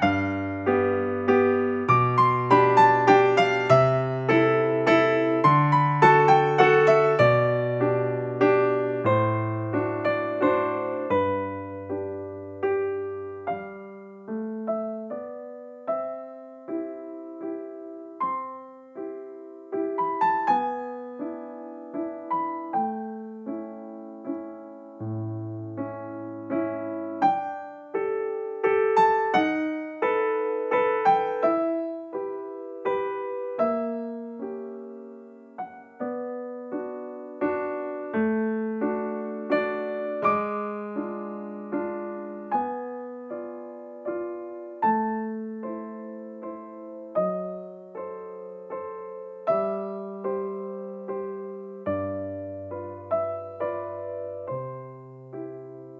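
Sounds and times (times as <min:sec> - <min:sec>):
gentle piano music: 0:00.0 - 0:55.9.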